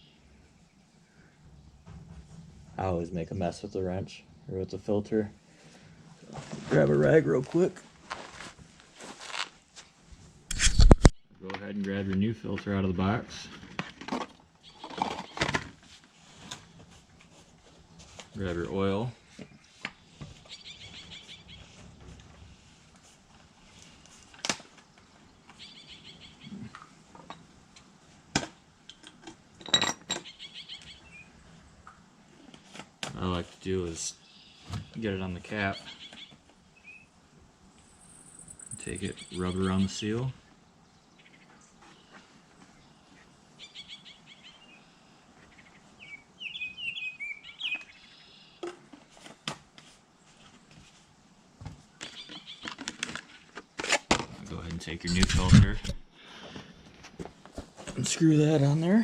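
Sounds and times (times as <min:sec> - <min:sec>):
small birds chirping: 0:18.3 - 0:21.8, 0:24.8 - 0:26.9, 0:30.2 - 0:31.9, 0:33.8 - 0:48.6, 0:51.9 - 0:53.6.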